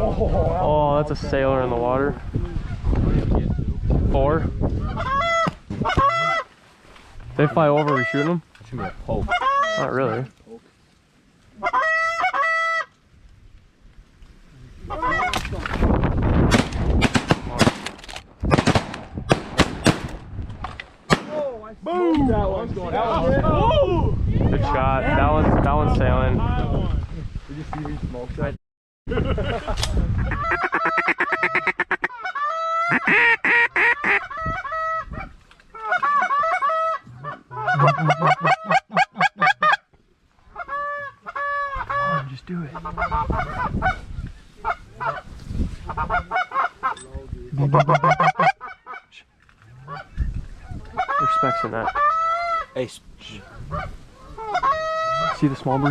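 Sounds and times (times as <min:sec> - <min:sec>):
goose honking: 0:04.9 - 0:06.5, 0:07.4 - 0:10.3, 0:11.6 - 0:12.9, 0:30.3 - 0:35.1, 0:35.8 - 0:39.8, 0:40.6 - 0:44.0, 0:47.6 - 0:49.1, 0:50.9 - 0:52.7, 0:53.7 - 0:55.9
shotgun blasts: 0:16.5 - 0:20.2, 0:21.1 - 0:21.4.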